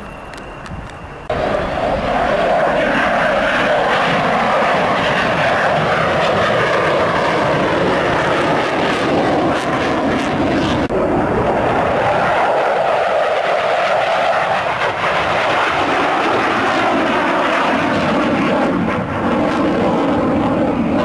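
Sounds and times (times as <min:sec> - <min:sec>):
jet engine roar: 0:00.0 - 0:21.0.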